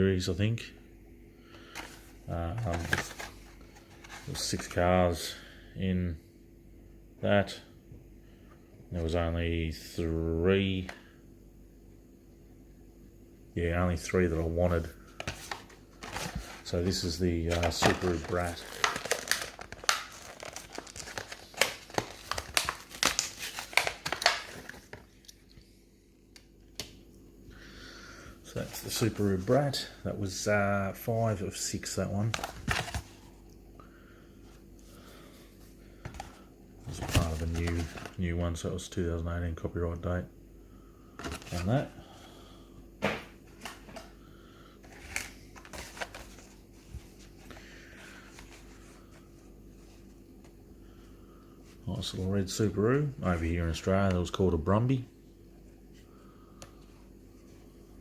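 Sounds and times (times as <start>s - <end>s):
low room hum: 0.0s - 58.0s
plastic blister pack crackling: 15.2s - 25.4s.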